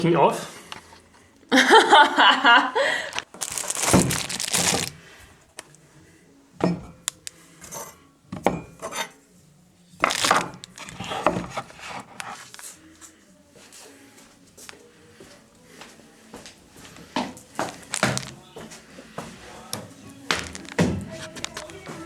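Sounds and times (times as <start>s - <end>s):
small hard objects clinking: 3.1s - 5.0s, 10.0s - 11.0s, 17.7s - 18.4s, 20.4s - 22.0s.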